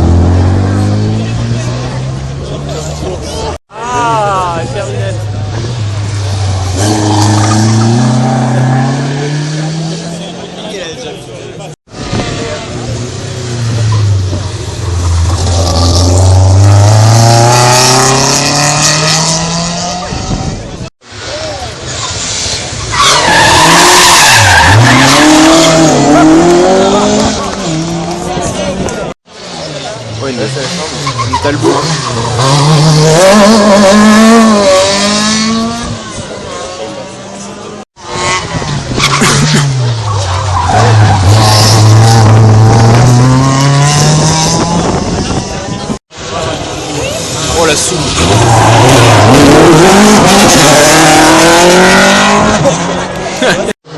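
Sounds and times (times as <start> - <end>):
tyres skidding: 0.0 - 53.9
rally car engine accelerating: 12.0 - 20.6, 21.2 - 53.9.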